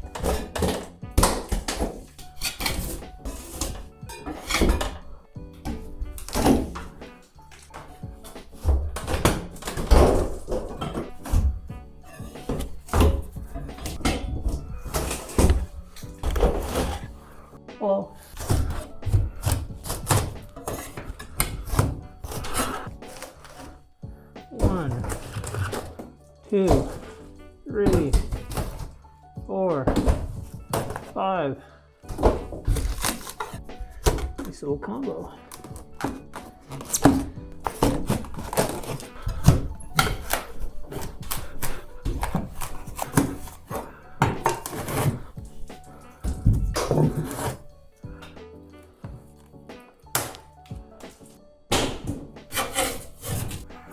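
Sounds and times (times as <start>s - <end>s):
background music: 0.0s - 53.9s
scraper prying ceiling tiles: 12.1s - 17.1s, 18.2s - 23.8s, 32.1s - 34.5s, 35.5s - 48.4s, 51.9s - 53.9s.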